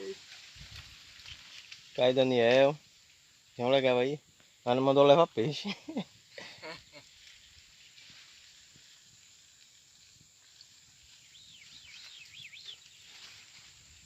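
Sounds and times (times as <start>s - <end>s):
steady high hiss: 0.0s - 14.0s
bird whistling: 11.3s - 12.9s.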